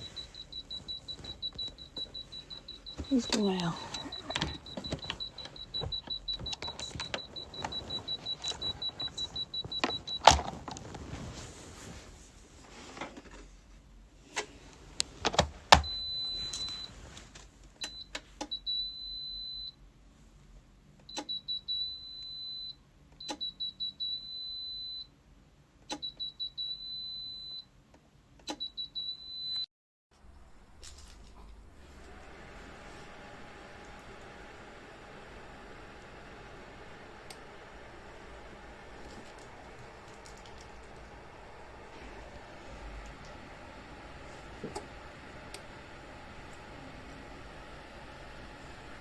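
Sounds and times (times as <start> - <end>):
heater buzzer beeping: 0.0 - 11.0.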